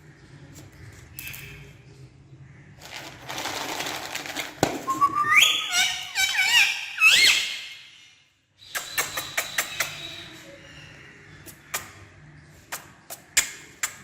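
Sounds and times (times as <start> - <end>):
rustling noise: 2.8 - 5.0
parrot whistling: 4.9 - 7.8.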